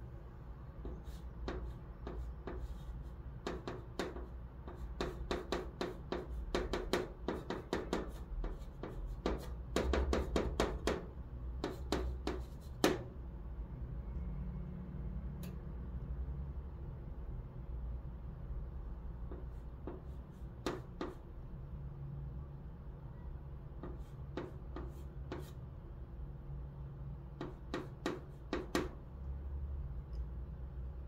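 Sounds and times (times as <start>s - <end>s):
chalk tapping and scraping on chalkboard: 0.8s - 13.1s, 19.2s - 21.4s, 23.7s - 25.7s, 27.3s - 29.0s.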